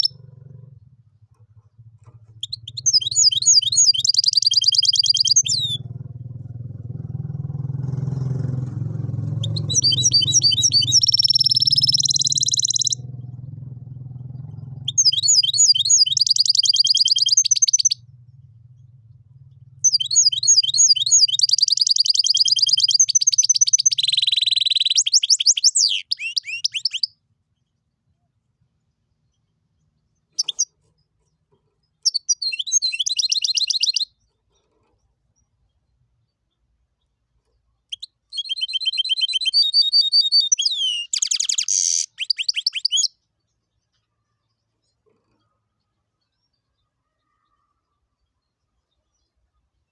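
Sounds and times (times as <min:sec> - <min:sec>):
bird singing chirps and trills: 0:00.0 - 0:06.5, 0:08.0 - 0:49.9
low steady hum: 0:17.9 - 0:20.4.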